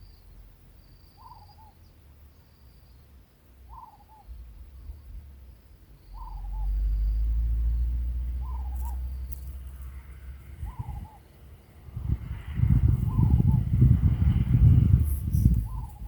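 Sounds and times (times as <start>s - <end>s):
loud low rumble: 11.8s - 16.0s.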